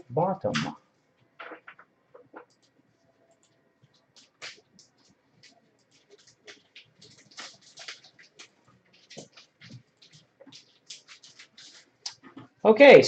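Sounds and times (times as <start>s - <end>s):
paper rustling and scratching: 3.4s - 12.6s.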